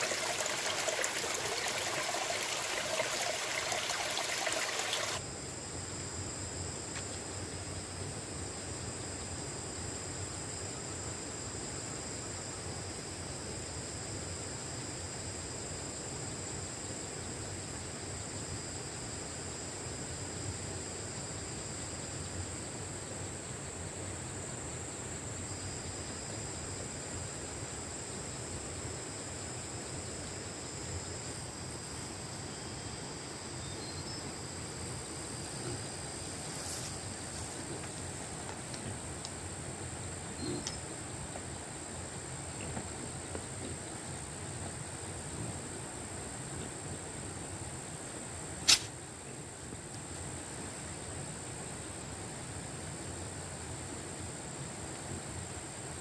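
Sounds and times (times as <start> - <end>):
insect chorus: 0.0 - 56.0
outdoor hiss: 0.0 - 56.0.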